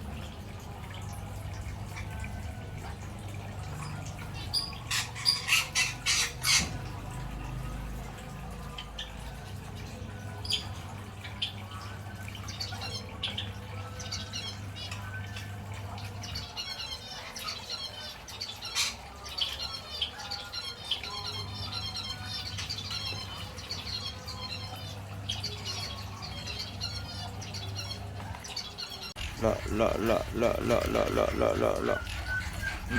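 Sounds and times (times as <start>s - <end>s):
lorikeets chattering: 4.4s - 6.8s, 28.9s - 32.9s.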